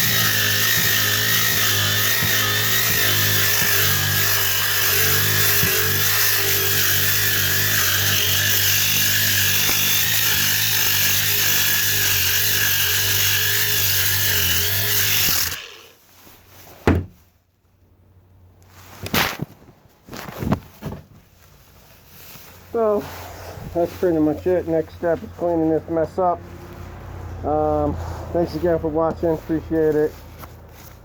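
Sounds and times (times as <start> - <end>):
power tool running: 0.0 - 16.0
sharp knocks: 16.8 - 17.2.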